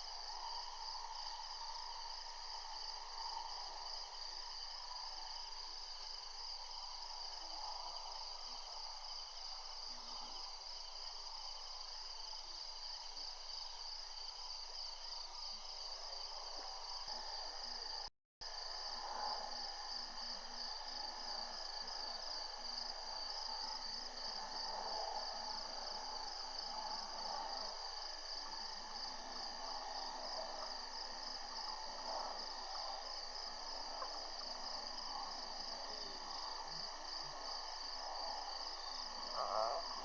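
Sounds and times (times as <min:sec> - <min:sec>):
crickets trilling: 0:00.0 - 0:40.0.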